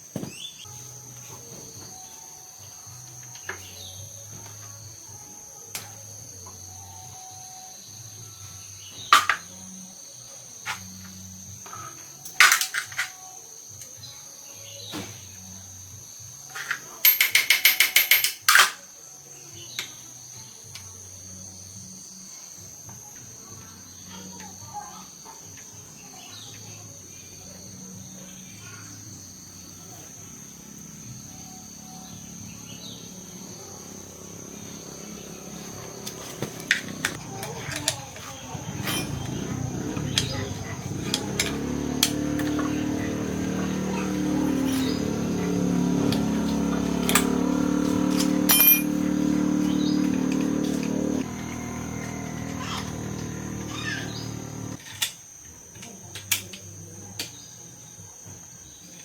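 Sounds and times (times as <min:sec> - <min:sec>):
insect chirring: 0:19.3 - 0:54.9
small motor running: 0:29.5 - 0:54.8.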